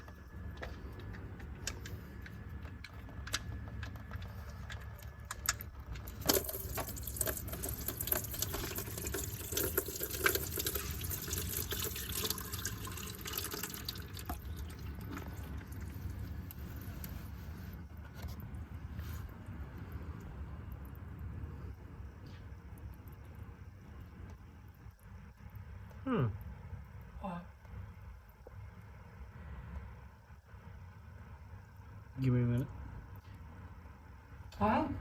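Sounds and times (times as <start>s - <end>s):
ticks and drips: 0.0s - 17.2s.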